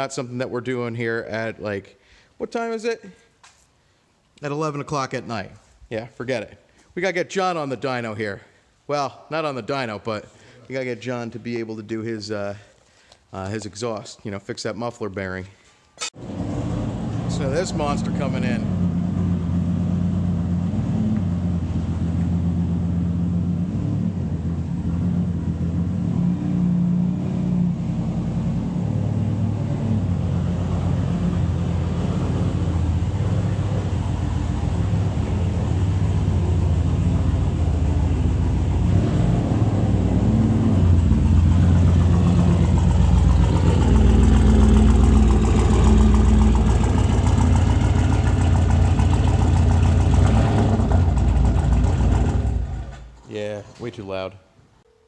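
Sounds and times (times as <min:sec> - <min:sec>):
car engine with loud exhaust: 0:16.2 - 0:53.2.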